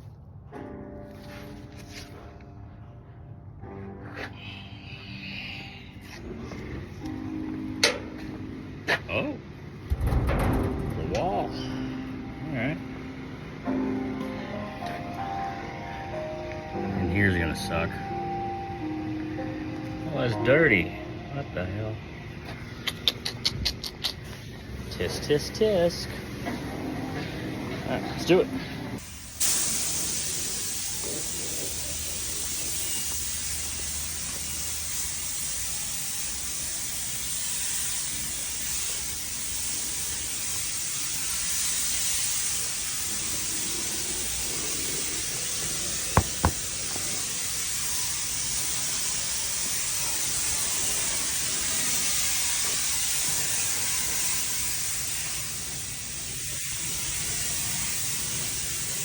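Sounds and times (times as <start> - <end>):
spray gun hissing: 29.0 - 59.0.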